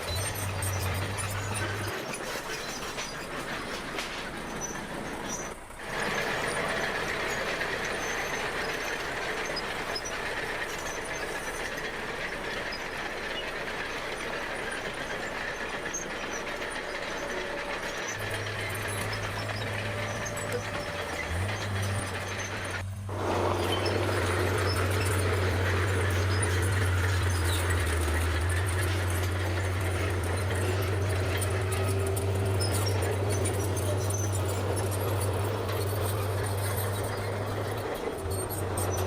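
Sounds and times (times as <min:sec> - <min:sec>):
bulldozer diesel engine running: 0:00.0 - 0:39.0
steel tracks clattering: 0:00.0 - 0:39.0.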